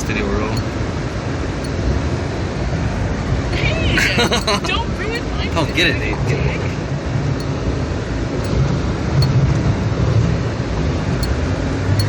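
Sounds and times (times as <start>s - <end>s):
truck engine rumbling: 0.0s - 9.4s.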